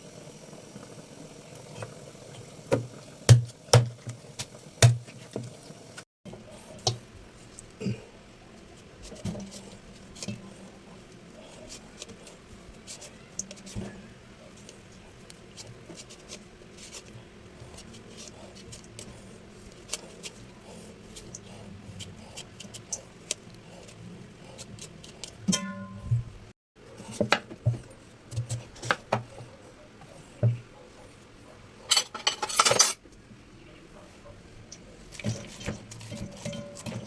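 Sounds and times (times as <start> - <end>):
kitchen utensils clicking and knocking: 31.9 - 33.0, 35.1 - 37.0.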